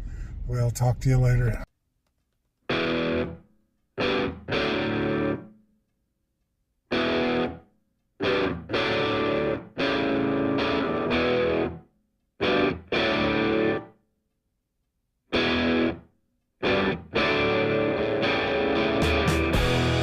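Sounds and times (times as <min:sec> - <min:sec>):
distorted electric guitar chords: 0:02.7 - 0:03.4, 0:04.0 - 0:05.5, 0:06.9 - 0:07.6, 0:08.2 - 0:11.8, 0:12.4 - 0:13.9, 0:15.4 - 0:16.0, 0:16.6 - 0:20.0.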